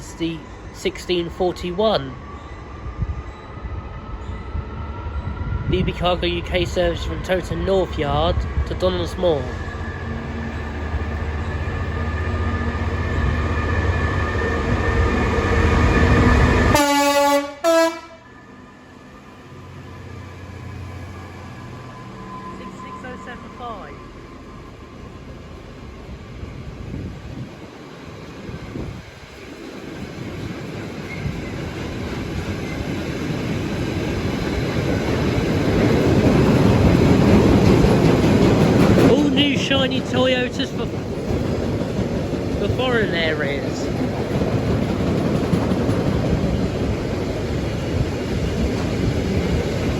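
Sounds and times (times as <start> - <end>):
freight train rumbling: 0.0 - 49.9
locomotive horn blasts: 16.7 - 18.3.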